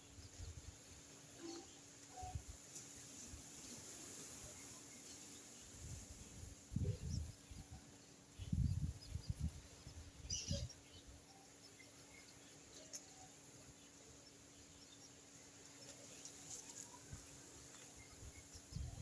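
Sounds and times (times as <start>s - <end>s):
faint high bird chirps: 6.7s - 15.2s.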